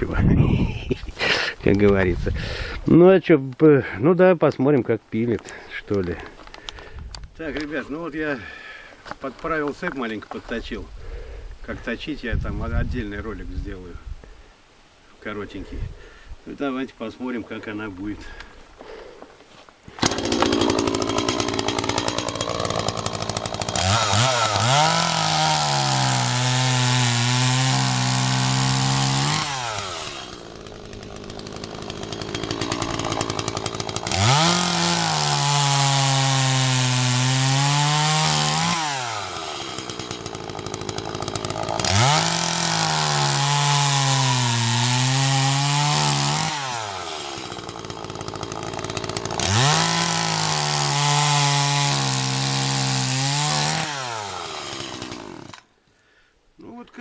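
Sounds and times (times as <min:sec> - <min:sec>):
chainsaw cutting through wood: 0:19.9 - 0:55.8
chainsaw engine revving: 0:20.0 - 0:55.7.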